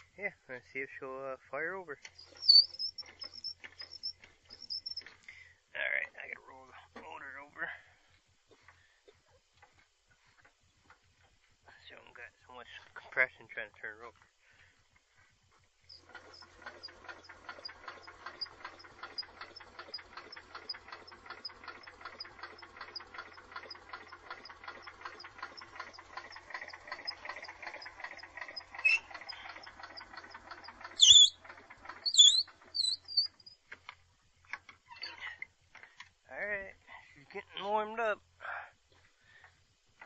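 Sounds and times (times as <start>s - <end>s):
engine cranked by starter: 0.0s - 5.6s, 15.0s - 36.1s
high-pitched chirps: 2.2s - 5.0s, 28.8s - 29.1s, 31.0s - 31.4s, 32.0s - 33.6s.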